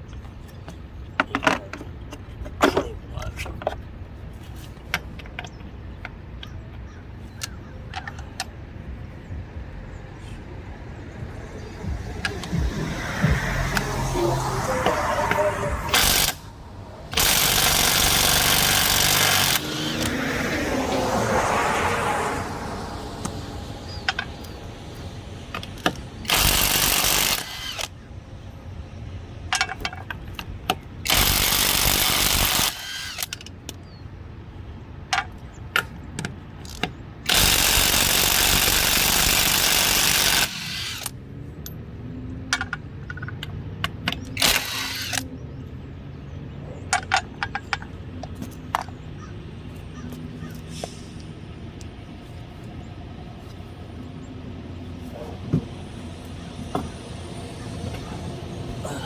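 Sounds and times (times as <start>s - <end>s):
impact wrench running: 12.2s - 20.1s, 25.8s - 27.9s, 31.1s - 33.4s, 37.3s - 41.1s, 44.4s - 45.2s.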